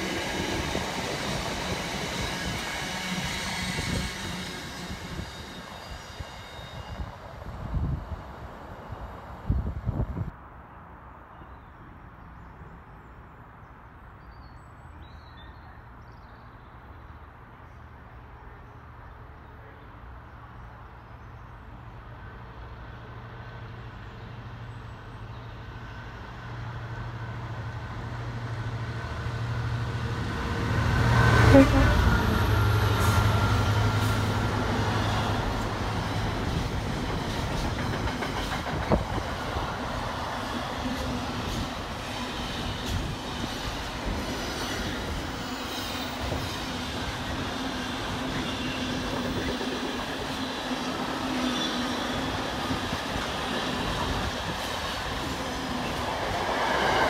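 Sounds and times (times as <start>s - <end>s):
freight train drone: 0.0s - 11.1s, 17.2s - 57.0s
train wagons rumbling and clattering: 27.7s - 57.0s.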